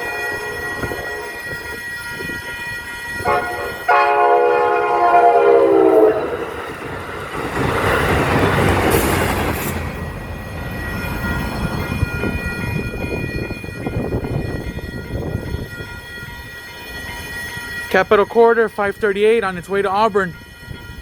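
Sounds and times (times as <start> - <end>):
train horn: 0.0 - 6.6
train wheel and rail noise: 0.0 - 21.0.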